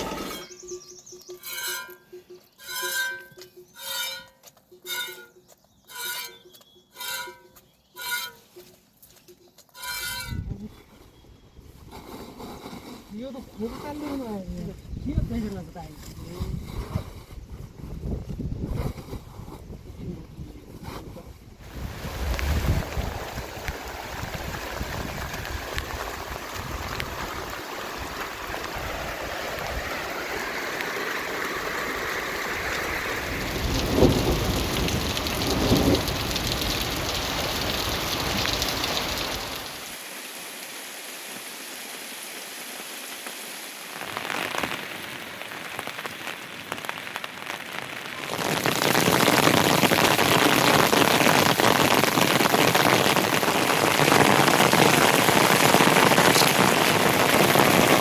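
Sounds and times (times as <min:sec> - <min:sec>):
heavy rain falling: 0:00.0 - 0:00.5, 0:21.6 - 0:58.0.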